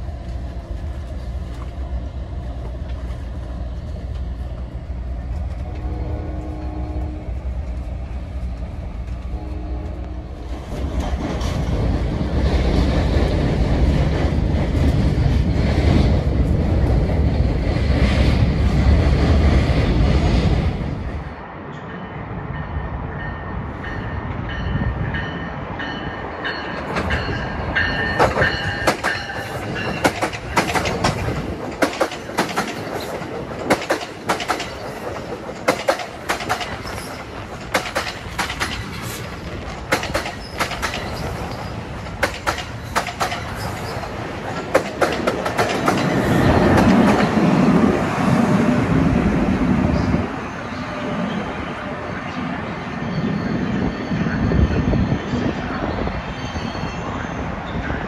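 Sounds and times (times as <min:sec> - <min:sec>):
train rumble: 0:00.0 - 0:58.0
train wheels clattering: 0:25.1 - 0:47.7.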